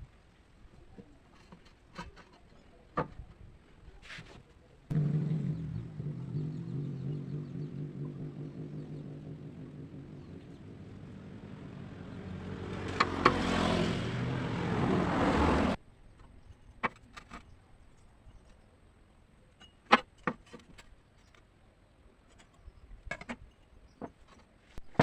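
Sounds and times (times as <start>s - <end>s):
engine running: 4.9s - 15.8s.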